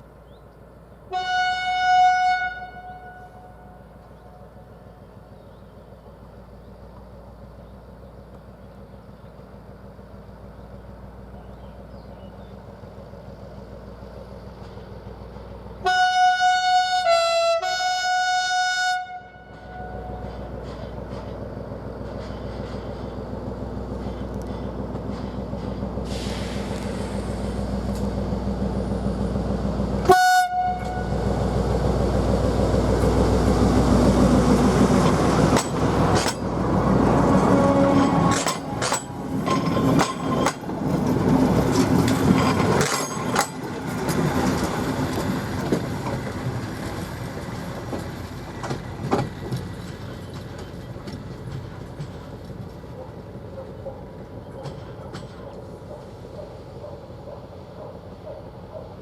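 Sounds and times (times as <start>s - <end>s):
diesel railcar engine rumble: 0.0s - 59.0s
train horn: 1.1s - 4.4s, 15.8s - 20.3s, 30.0s - 31.3s, 37.3s - 38.4s.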